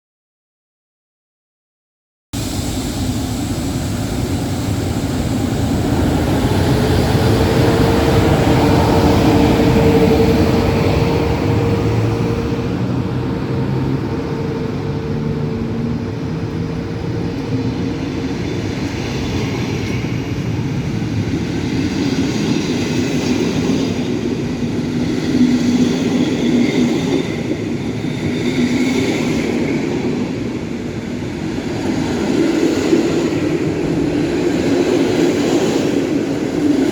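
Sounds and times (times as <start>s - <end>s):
train rumbling past on rails: 2.4s - 36.9s.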